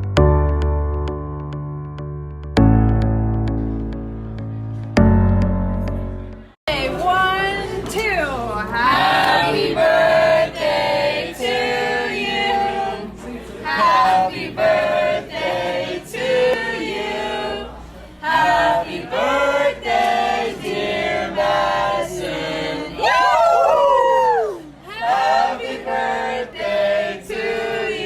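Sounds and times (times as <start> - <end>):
choir singing: 8.8 - 23.3, 24.9 - 28.0.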